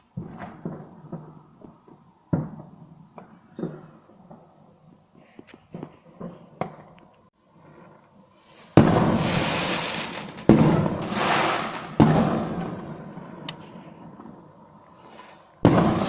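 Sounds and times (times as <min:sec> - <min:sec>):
fireworks bursting: 0:00.0 - 0:14.3, 0:14.9 - 0:16.0.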